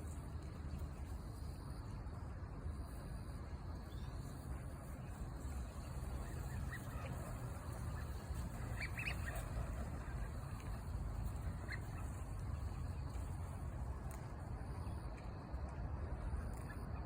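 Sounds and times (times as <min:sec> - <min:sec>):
waterbirds calling: 0:05.5 - 0:13.1.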